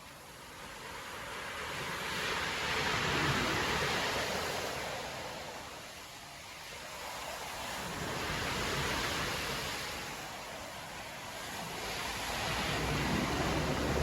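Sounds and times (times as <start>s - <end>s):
surf breaking on shore: 1.1s - 14.0s.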